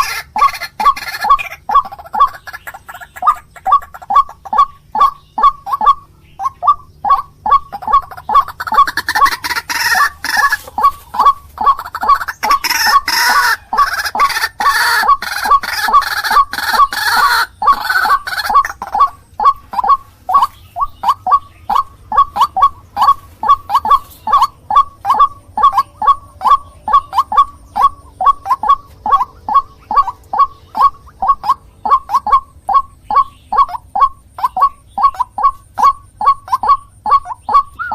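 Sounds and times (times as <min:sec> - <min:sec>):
waterhen calling: 0:00.0 - 0:37.9.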